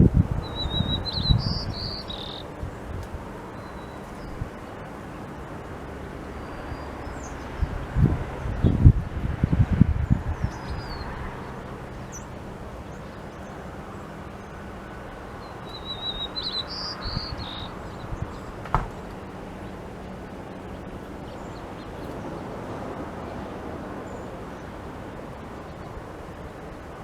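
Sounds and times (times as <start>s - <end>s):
outdoor background hiss: 0.0s - 27.0s
birds chirping and whistling: 0.4s - 2.5s, 10.4s - 13.6s, 15.4s - 19.1s.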